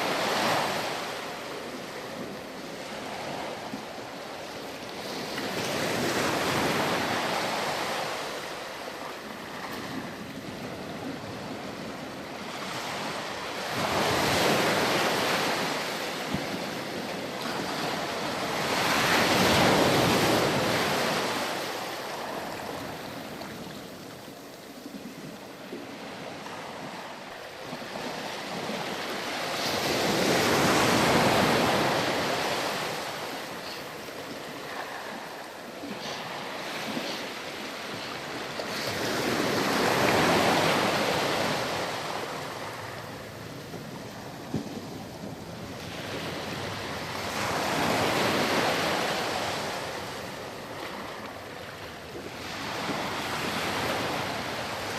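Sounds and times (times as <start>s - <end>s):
ocean waves breaking on beach: 0.0s - 54.9s
wind noise: 24.8s - 51.1s.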